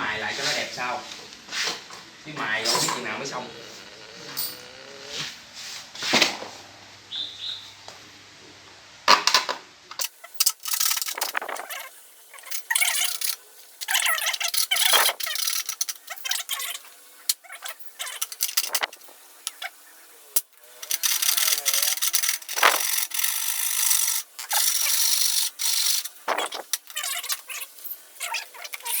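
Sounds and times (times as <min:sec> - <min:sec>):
saw cutting through plastic: 0:20.8 - 0:29.0.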